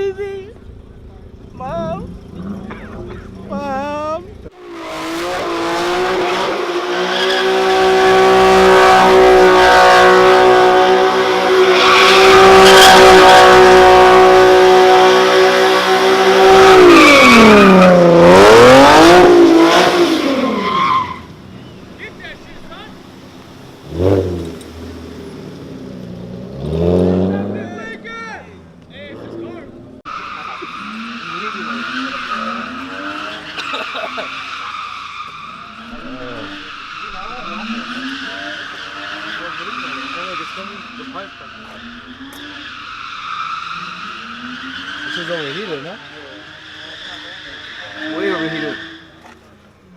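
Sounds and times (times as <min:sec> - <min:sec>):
car engine at high revs: 0:00.0 - 0:28.1, 0:28.8 - 0:49.9
tyres squealing: 0:07.1 - 0:23.7, 0:29.3 - 0:49.6.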